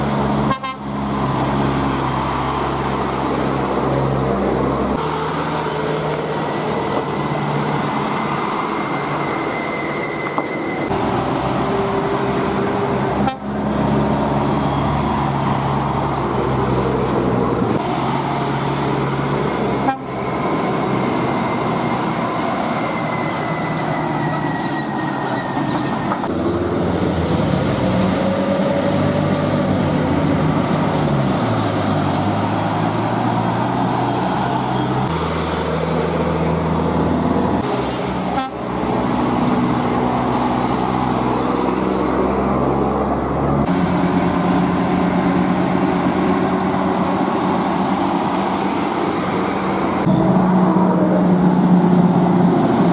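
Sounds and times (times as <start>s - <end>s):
heavy truck diesel engines passing: 0.0s - 52.9s
truck horn toots: 0.4s - 1.0s, 13.1s - 13.8s, 19.7s - 20.4s, 37.7s - 39.1s.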